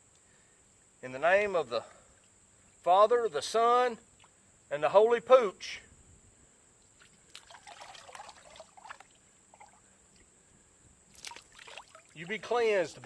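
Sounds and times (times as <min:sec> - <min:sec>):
water trickling and splashing: 0:06.8 - 0:10.3, 0:11.1 - 0:13.0.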